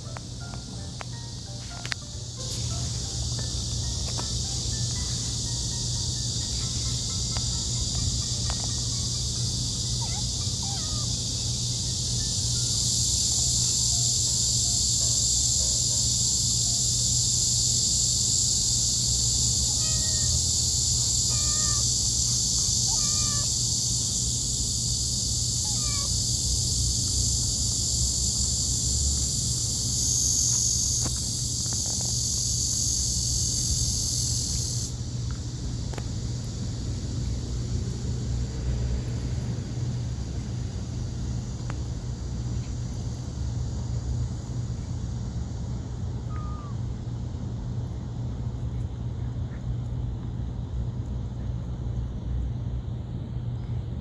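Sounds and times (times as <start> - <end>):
cicada drone: 0.0 - 54.0
steady low hum: 0.0 - 54.0
cat mewing: 9.8 - 11.4, 19.6 - 23.7, 25.6 - 26.2, 46.3 - 46.8.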